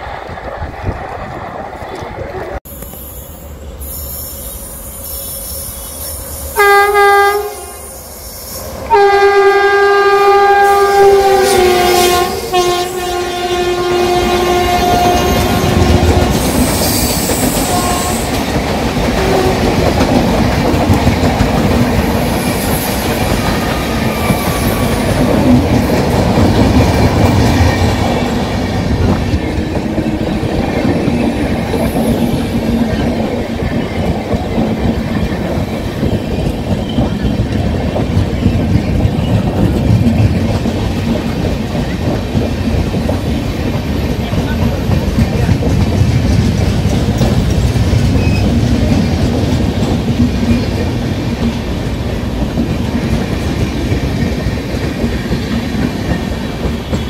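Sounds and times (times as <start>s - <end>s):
shrill train horn: 2.7s - 18.4s, 19.2s - 19.9s
train wheels clickety-clack: 10.5s - 57.0s.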